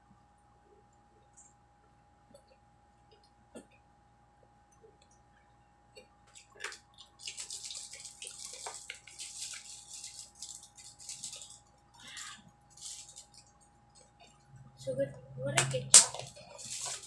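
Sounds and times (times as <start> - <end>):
faint steady hum: 0.0 - 17.0
food packaging rustling and crinkling: 6.3 - 14.3, 15.9 - 17.0.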